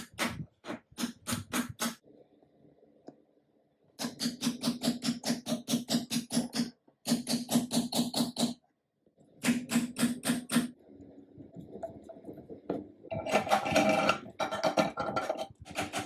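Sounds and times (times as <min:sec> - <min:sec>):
sewing machine clatter: 0:13.1 - 0:16.0.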